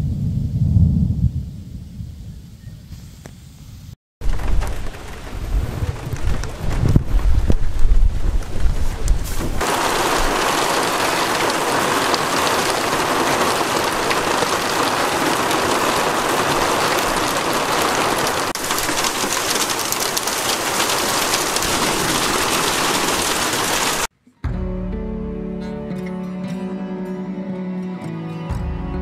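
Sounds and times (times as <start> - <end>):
heavy rain on pavement: 4.2 - 24.1.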